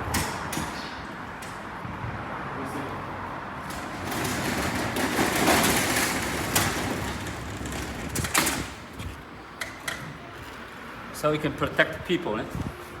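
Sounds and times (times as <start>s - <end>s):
sliding door rolling on track: 3.6s - 10.7s.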